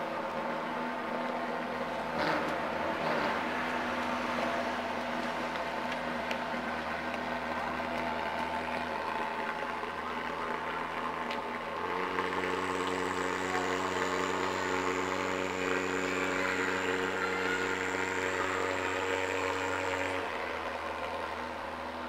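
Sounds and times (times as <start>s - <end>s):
fogger machine drone: 0.0s - 22.0s
thin high whine: 11.8s - 22.0s.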